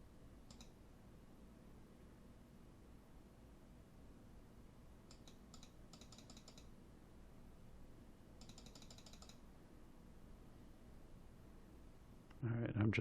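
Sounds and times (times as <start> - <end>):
low steady room hum: 0.0 - 13.0
faint keyboard typing: 0.4 - 0.8, 5.0 - 6.8, 8.3 - 9.5.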